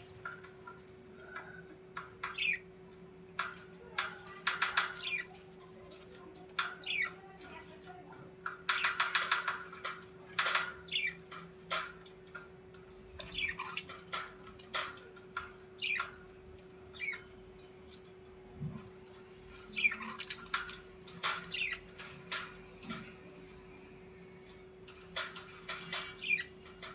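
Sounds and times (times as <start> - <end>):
bird squawking: 2.3 - 2.7, 6.8 - 7.2, 10.5 - 11.2.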